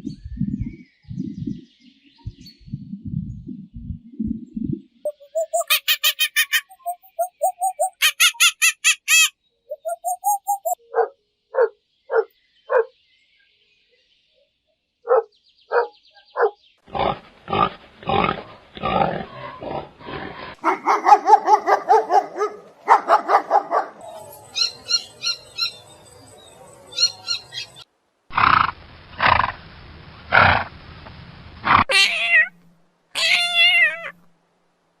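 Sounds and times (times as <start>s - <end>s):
high chirps: 5.0s - 10.8s
rising and falling cries: 5.1s - 10.8s, 33.2s - 34.2s
animals calling: 5.1s - 13.0s, 15.0s - 29.3s, 31.7s - 32.6s, 33.2s - 34.3s
grunting calls: 16.4s - 25.5s.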